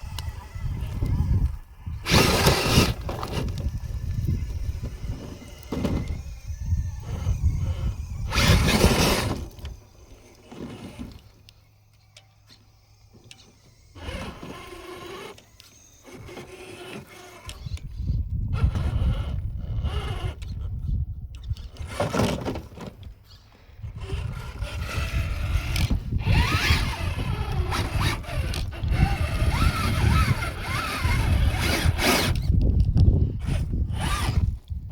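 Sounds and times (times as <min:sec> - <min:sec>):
wind rumble on microphone: 0:00.0 - 0:09.8, 0:17.4 - 0:22.1, 0:23.8 - 0:34.9
electric motor and gears whirring: 0:00.0 - 0:34.9.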